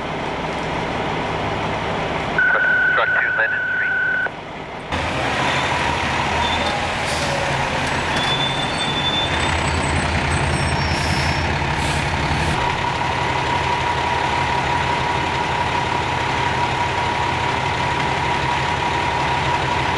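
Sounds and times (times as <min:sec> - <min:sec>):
diesel engine running: 0:00.0 - 0:19.9
air brakes hissing: 0:06.2 - 0:12.6.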